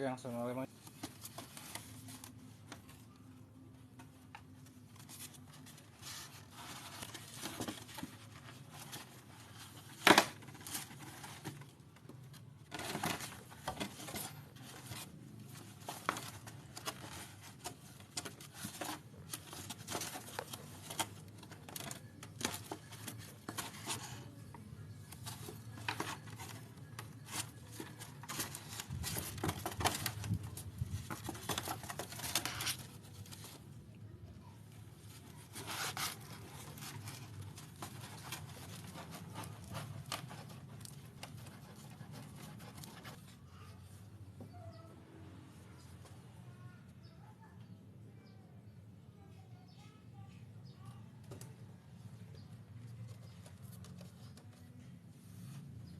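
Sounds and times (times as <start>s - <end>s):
cats scratching and tearing cloth: 4.2s - 33.8s, 34.6s - 43.8s.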